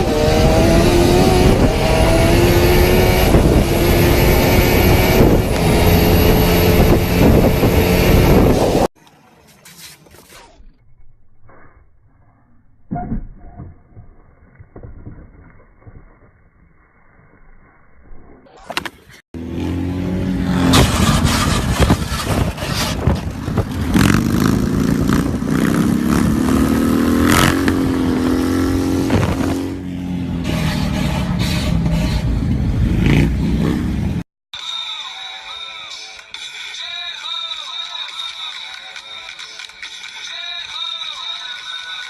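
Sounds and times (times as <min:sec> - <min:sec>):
vehicle engine revving: 0:00.0 - 0:08.9, 0:19.4 - 0:34.2
sharp knocks and scrapes: 0:20.7 - 0:23.9.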